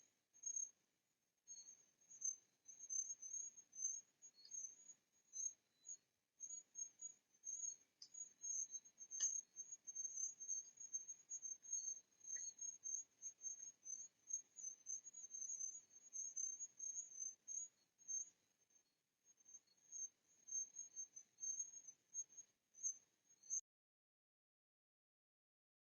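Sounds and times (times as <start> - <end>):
faint ticks: 1.6 - 5.6, 6.4 - 18.3.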